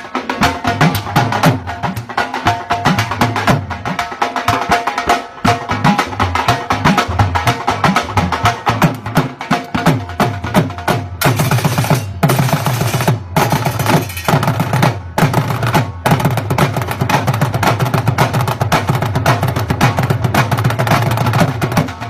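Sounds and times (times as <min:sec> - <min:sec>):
drums played fast: 0:00.0 - 0:22.0.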